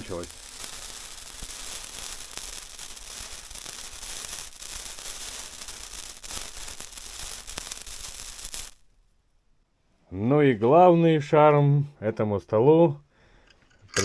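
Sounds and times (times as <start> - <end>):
candle fizzing and crackling: 0.0 - 8.9, 13.7 - 14.0.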